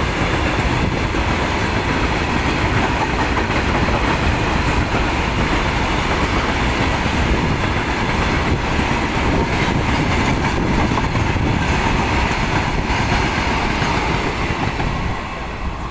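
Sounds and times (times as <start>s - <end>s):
freight train wheels rumbling on rails: 0.0s - 15.9s.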